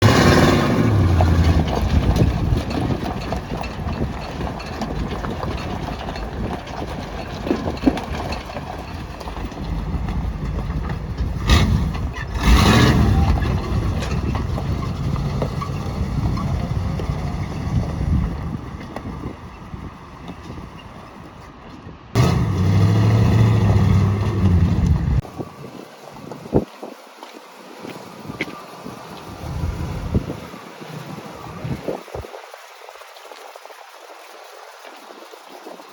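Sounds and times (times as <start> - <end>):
truck engine idling: 22.2 - 25.2.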